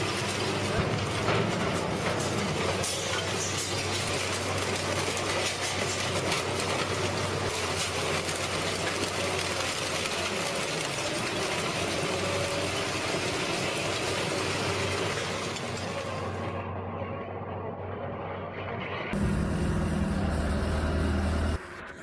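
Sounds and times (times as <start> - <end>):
shredding machine engine drone: 0.0 - 22.0
material crackling as shredded: 3.8 - 14.5.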